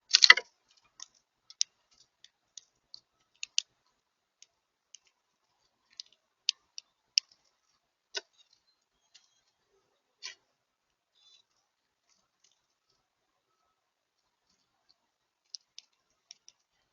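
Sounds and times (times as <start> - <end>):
bird pecking at seed: 0.0 - 10.5.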